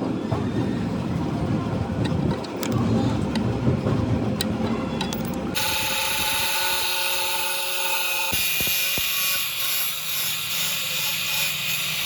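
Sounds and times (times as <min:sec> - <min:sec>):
low rumble with sharp clicks: 0:01.2 - 0:05.6
electric power tool whining: 0:05.6 - 0:12.0.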